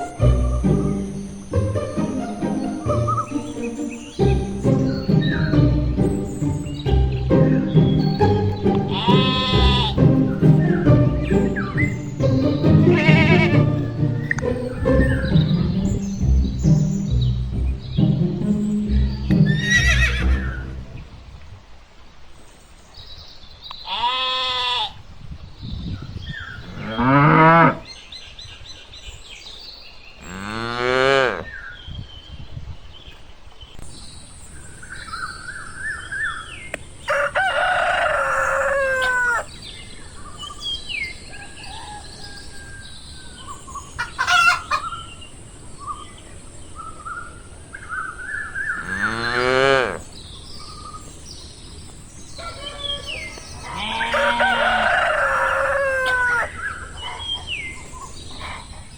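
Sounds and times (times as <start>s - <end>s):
livestock calling: 0.0s - 17.2s, 18.0s - 21.0s, 23.8s - 25.0s, 37.1s - 39.5s, 48.8s - 50.1s, 52.4s - 58.9s
bird chirps: 0.0s - 21.2s, 31.5s - 58.9s
rooster crowing: 37.0s - 39.5s, 41.3s - 42.9s, 52.4s - 56.7s.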